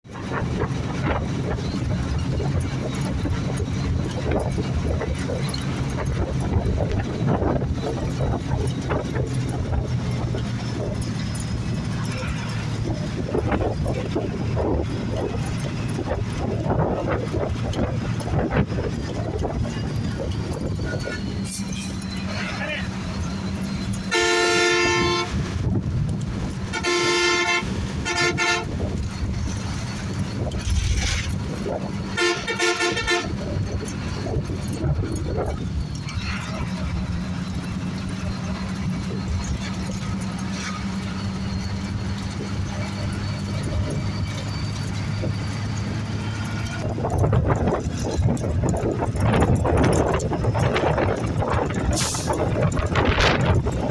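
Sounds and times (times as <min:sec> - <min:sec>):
bus engine drone: 0:00.0 - 0:53.9
bodywork knocks and rattles: 0:00.2 - 0:22.3, 0:33.4 - 0:53.9
vehicle horns honking: 0:23.9 - 0:25.7, 0:26.6 - 0:29.1, 0:32.0 - 0:33.7.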